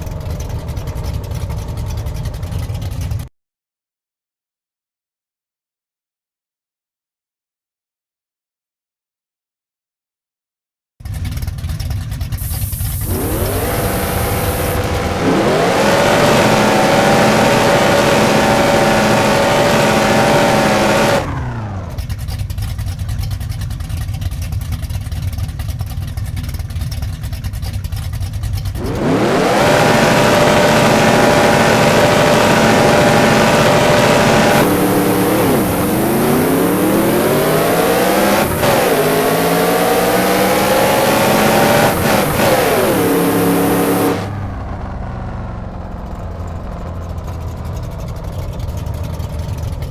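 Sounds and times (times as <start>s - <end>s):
race car engine revving: 12.4s - 22.2s, 28.7s - 49.9s.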